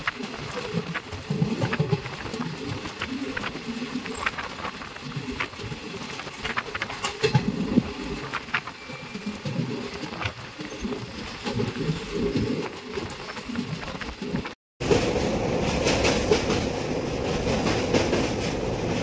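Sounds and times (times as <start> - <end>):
train rumble from on board: 0.0 - 19.0.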